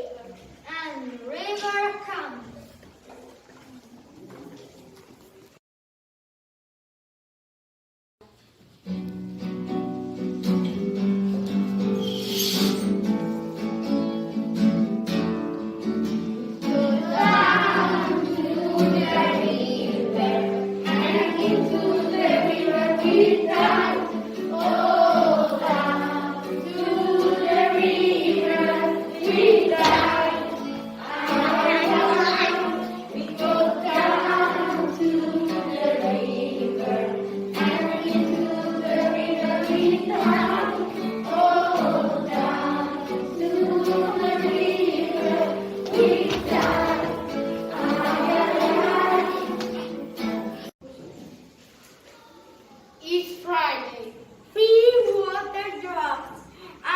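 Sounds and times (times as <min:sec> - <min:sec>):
strummed guitar: 0:08.8 - 0:50.7
children's choir singing: 0:10.1 - 0:50.7.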